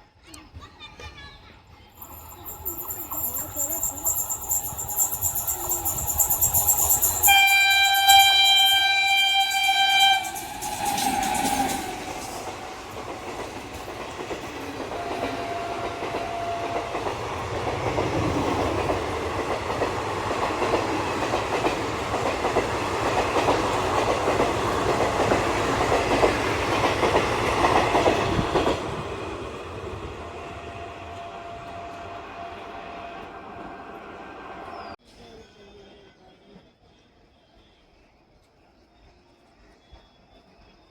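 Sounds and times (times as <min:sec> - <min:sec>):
train wheels clattering over rail joints: 0:02.0 - 0:28.8
train horn blast: 0:07.2 - 0:12.7, 0:14.9 - 0:17.4.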